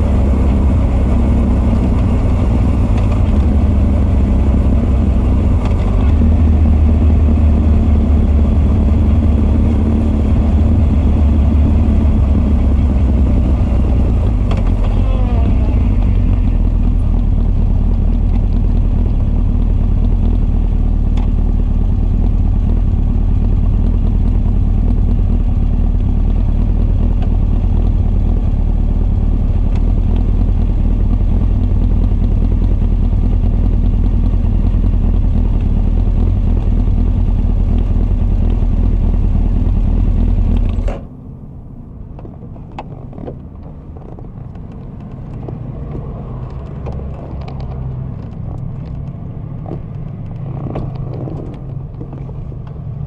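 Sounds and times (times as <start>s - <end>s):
motorcycle engine idling: 8.1s - 40.3s.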